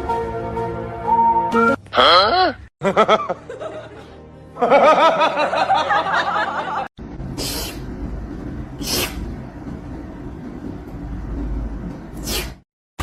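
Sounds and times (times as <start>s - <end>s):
low rumbling background: 7.0s - 12.2s
short hissing noises: 7.4s - 7.9s, 8.8s - 9.3s, 12.2s - 12.6s.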